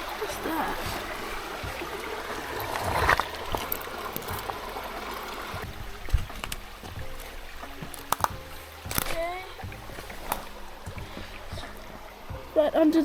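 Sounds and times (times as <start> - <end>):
creek water over rocks: 0.0 - 13.0.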